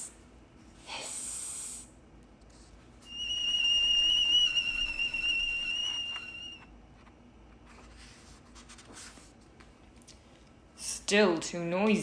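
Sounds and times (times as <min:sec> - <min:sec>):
tea kettle whistling: 0:03.1 - 0:06.7.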